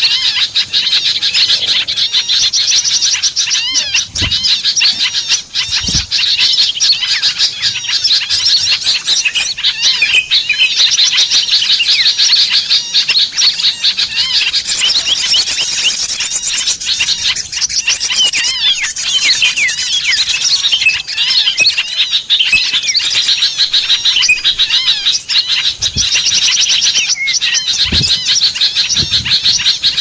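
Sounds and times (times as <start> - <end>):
small songbirds chirping and twittering: 0.0 - 30.0.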